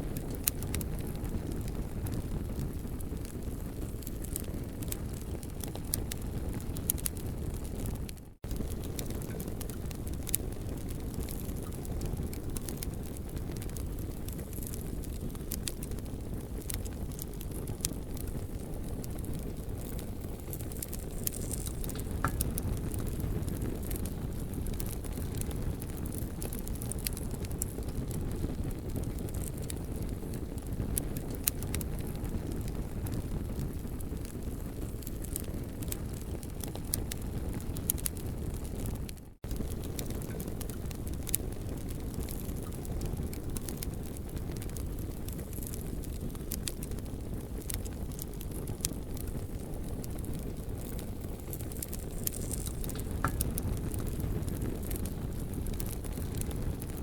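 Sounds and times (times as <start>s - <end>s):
campfire crackling and popping: 0.0s - 57.0s
low fire rumble: 0.0s - 57.0s.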